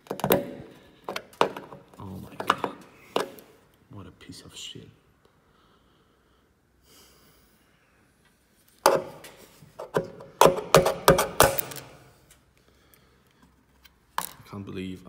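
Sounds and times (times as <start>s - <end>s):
tool striking hard filler: 9.8s - 11.9s.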